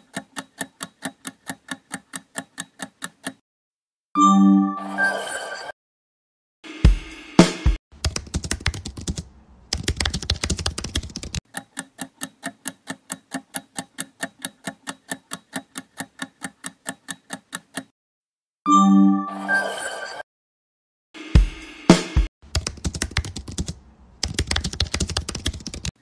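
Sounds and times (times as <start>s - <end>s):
timer clock ticking: 0.0s - 3.4s, 11.4s - 17.9s
rapid keyboard typing: 8.0s - 17.9s, 22.5s - 26.0s.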